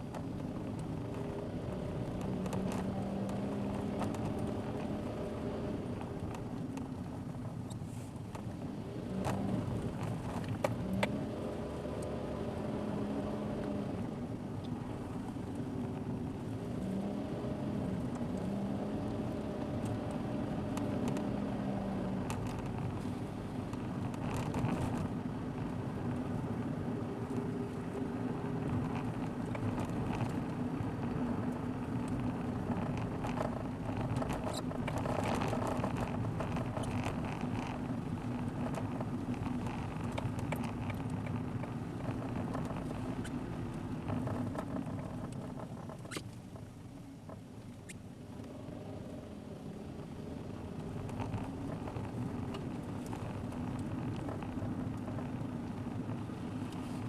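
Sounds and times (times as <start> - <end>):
car engine hum: 0.0 - 57.0
light clicks and ticks: 31.5 - 48.6
tyre noise: 32.4 - 46.4.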